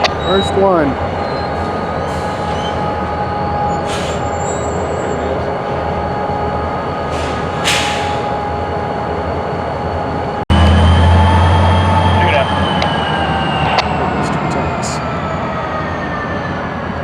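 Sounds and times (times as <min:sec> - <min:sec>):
wheel squeal: 0:00.0 - 0:05.5
freight cars rumbling: 0:00.0 - 0:17.0.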